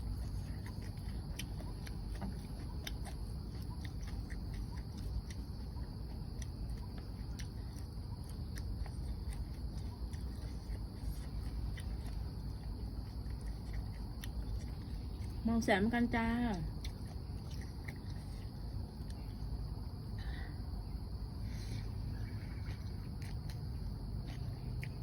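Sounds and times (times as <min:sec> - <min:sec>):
person chewing food: 0:00.0 - 0:15.4, 0:16.5 - 0:25.0
steady low rumble: 0:00.0 - 0:25.0
wet mouth clicks and smacks: 0:22.8 - 0:25.0.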